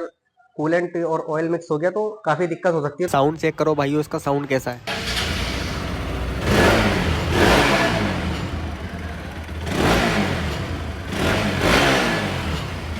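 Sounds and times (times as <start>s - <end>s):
motorcycle engine revving: 4.8s - 12.9s.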